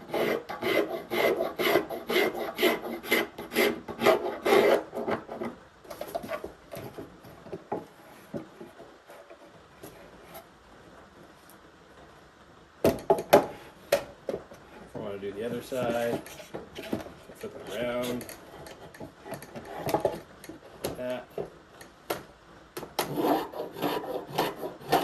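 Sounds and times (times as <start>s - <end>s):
hand blade shaving wood: 0.0s - 5.5s, 23.1s - 25.0s.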